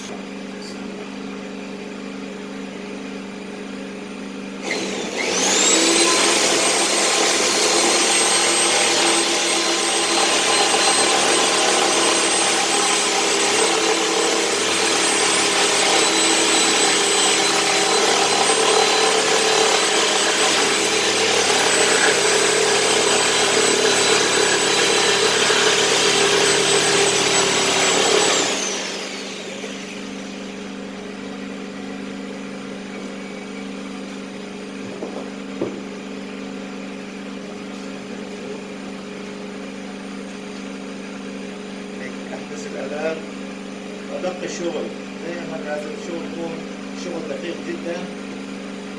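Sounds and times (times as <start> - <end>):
power cutter whining through metal: 4.6 - 31.0.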